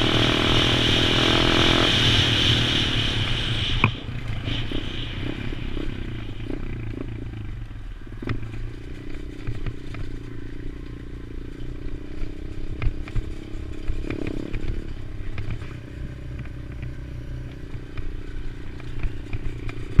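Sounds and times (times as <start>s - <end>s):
small motorbike engine running: 0.0s - 20.0s.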